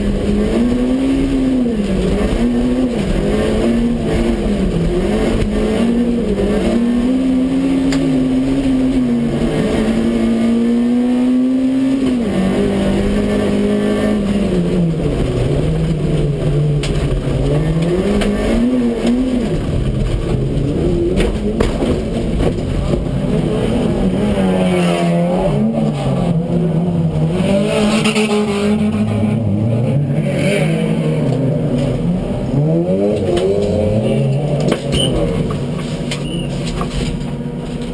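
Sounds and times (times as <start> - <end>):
car engine revving: 0.0 - 37.9
tyres on dirt track: 0.0 - 37.9.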